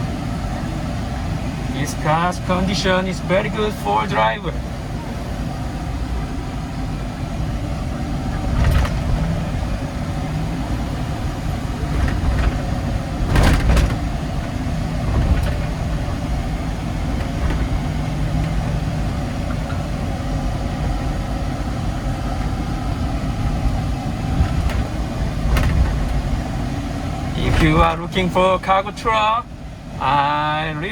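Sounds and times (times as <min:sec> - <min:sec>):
truck engine and road rumble: 0:00.0 - 0:30.9
short knocks: 0:11.9 - 0:14.2.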